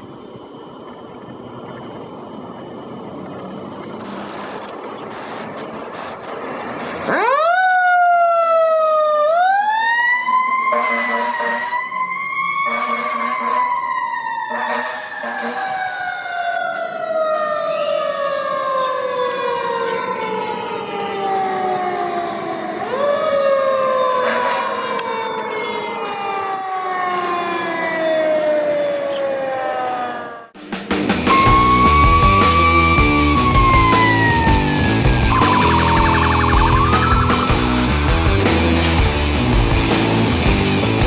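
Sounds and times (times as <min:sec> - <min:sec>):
mechanical siren wailing: 0:06.9 - 0:30.6, 0:31.3 - 0:38.2
fire engine running: 0:30.8 - 0:41.0.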